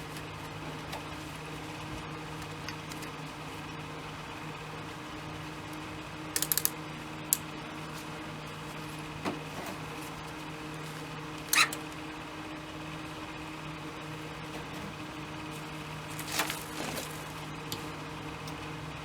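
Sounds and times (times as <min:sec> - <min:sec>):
low electrical hum: 0:00.0 - 0:19.0
sharp metallic clicks: 0:06.4 - 0:07.4.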